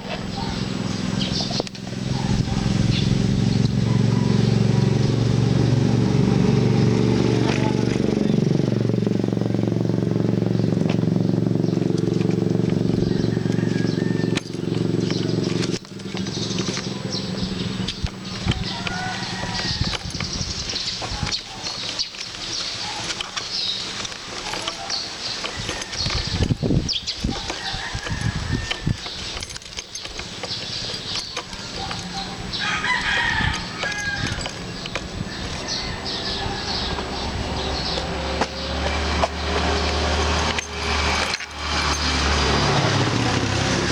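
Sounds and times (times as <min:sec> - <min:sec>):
motorcycle engine running: 0:00.0 - 0:43.9
rooster crowing: 0:03.8 - 0:04.7, 0:12.9 - 0:14.9, 0:18.6 - 0:20.3, 0:25.5 - 0:26.6, 0:27.3 - 0:29.2, 0:31.8 - 0:34.7, 0:35.3 - 0:37.6.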